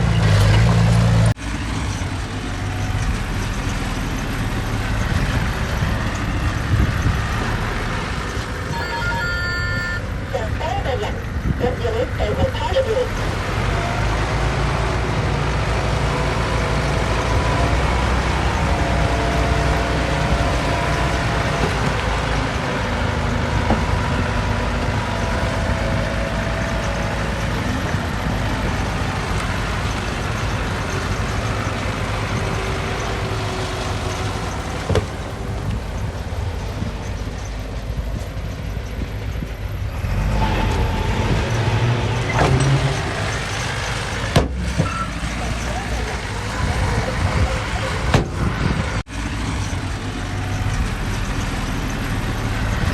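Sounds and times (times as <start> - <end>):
diesel machinery running under load: 0.0 - 52.9
high whining tones: 8.6 - 10.7.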